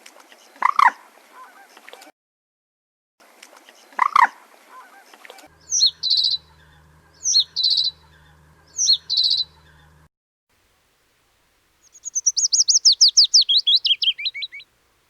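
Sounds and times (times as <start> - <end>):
bird calls and trills: 5.5 - 10.1, 11.8 - 14.7
low steady hum: 5.5 - 12.2.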